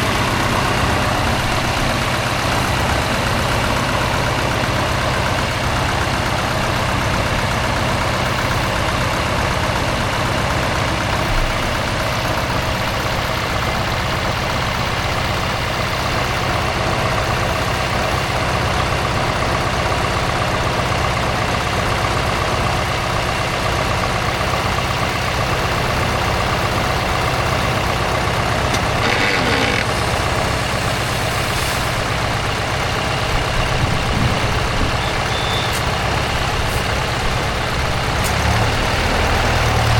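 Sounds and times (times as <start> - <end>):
truck engine running at low revs: 0.0 - 39.9.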